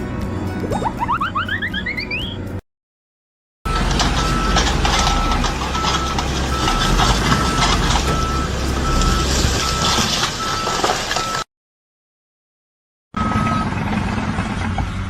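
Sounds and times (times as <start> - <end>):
knocks and clatter: 3.7 - 8.4
reversing alarm beeping: 3.7 - 11.5, 13.2 - 13.7
vehicle engine rumble: 3.7 - 11.5, 13.2 - 15.0.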